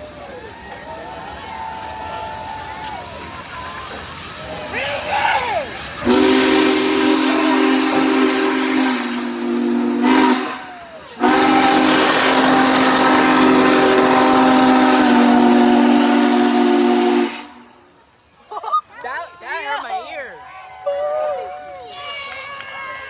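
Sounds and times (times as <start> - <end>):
steam hiss: 0.0 - 17.9
steam locomotive chime whistle: 0.1 - 17.8.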